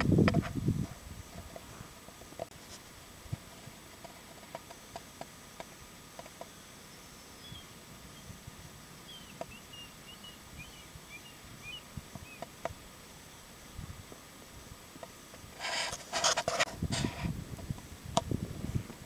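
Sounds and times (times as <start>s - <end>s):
small bird chirping: 6.4s - 8.3s, 9.0s - 12.5s
loud rustling crunches: 15.4s - 17.3s.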